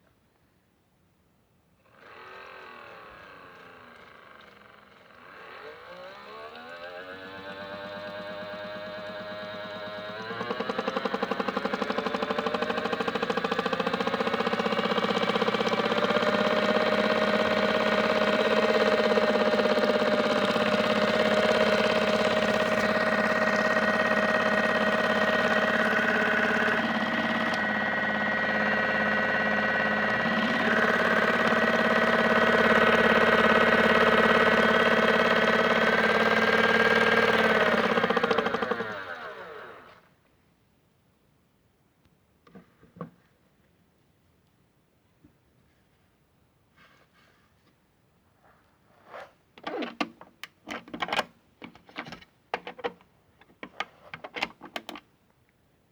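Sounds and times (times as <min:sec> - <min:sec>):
toy washing machine motor whining: 0:02.0 - 0:40.0.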